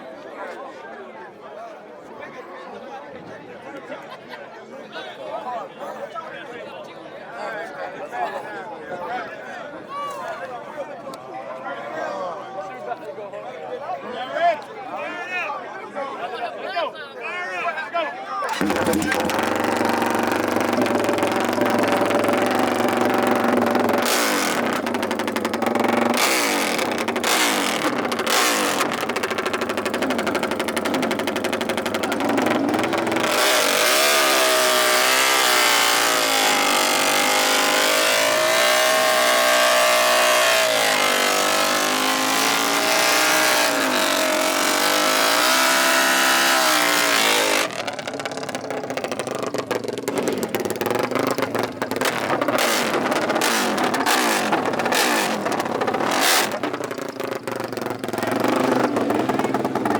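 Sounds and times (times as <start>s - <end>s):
off-road engines revving: 18.5s - 59.9s.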